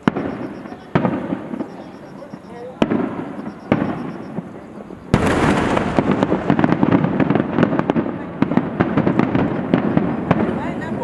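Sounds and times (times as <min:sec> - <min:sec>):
firework crackling: 0:00.0 - 0:11.0
firework shell boom: 0:05.2 - 0:08.2.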